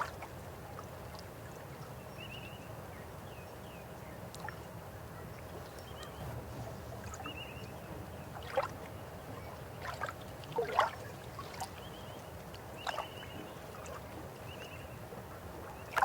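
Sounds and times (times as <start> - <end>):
water splashes and gurgles: 0.0 - 2.0, 5.4 - 16.0
river water flowing: 4.3 - 16.0.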